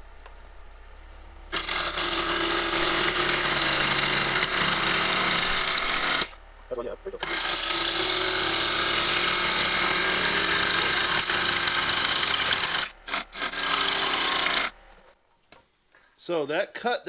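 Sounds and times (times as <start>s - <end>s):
gouge cutting wood on lathe: 1.5s - 6.4s, 7.2s - 14.8s.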